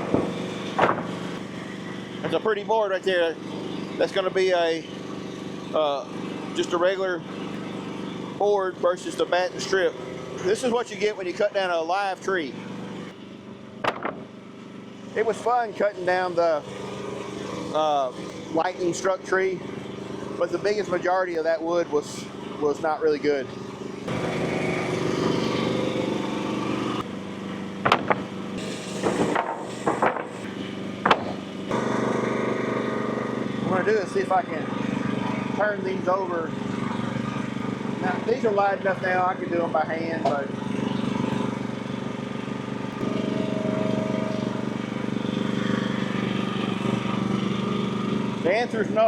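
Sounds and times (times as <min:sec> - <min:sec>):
sawmill engine running: 0:00.0 - 0:49.0
sharp knocks and clacks: 0:13.8 - 0:14.2, 0:27.8 - 0:28.3, 0:29.0 - 0:31.4
thin hydraulic whine: 0:24.0 - 0:34.6, 0:42.9 - 0:45.2.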